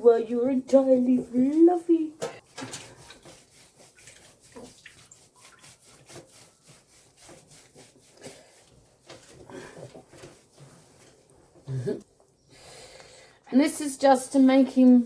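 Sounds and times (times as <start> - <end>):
hands rubbing wet dog fur: 0.2 - 11.6.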